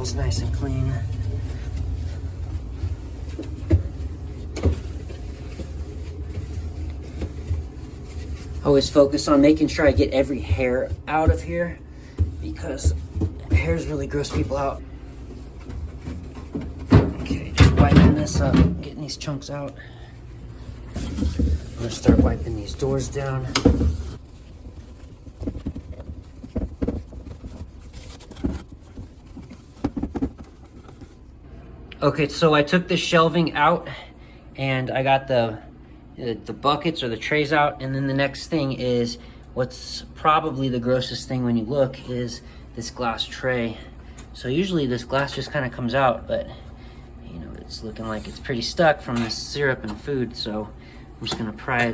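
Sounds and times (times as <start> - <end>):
paper towel wiping: 0.0 - 31.2, 47.6 - 51.9
faint handling noise: 0.0 - 31.3
steady low hum: 0.0 - 51.9.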